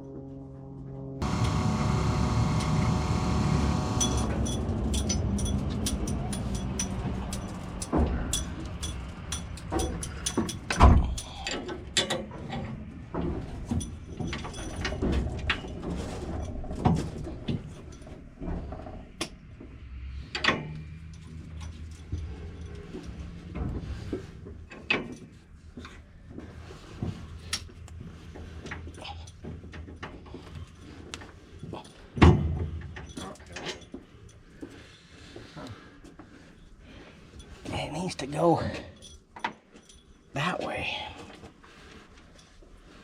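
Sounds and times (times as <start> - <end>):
machine hum: 0.2 - 5.9
metallic clanks and rattles: 4.0 - 35.6.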